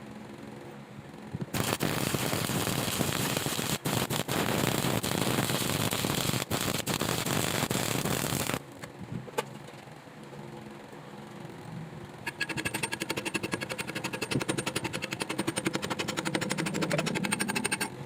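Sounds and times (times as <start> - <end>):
welding arc crackling: 1.4 - 8.6.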